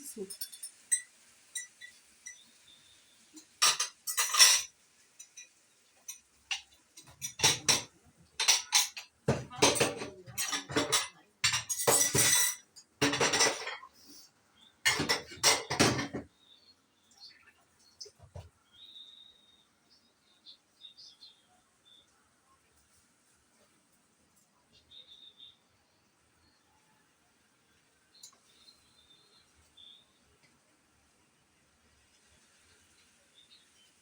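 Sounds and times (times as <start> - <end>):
metal spoon scraping a pot: 3.6 - 5.5, 6.1 - 13.9.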